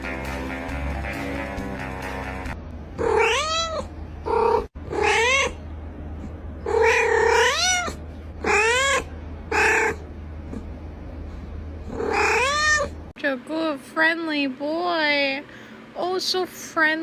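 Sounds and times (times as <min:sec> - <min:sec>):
background music: 0:00.0 - 0:02.6
cat meowing loudly: 0:03.0 - 0:03.9, 0:04.9 - 0:05.6, 0:06.7 - 0:10.0.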